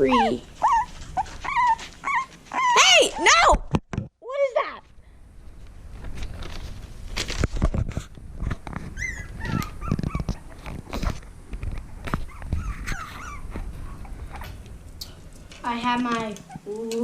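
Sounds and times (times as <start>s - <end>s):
rustling close to microphone: 0.0s - 2.8s, 4.8s - 17.0s
puppies squeaking and whining: 0.0s - 3.3s, 8.8s - 11.0s, 12.0s - 14.6s, 16.4s - 16.8s.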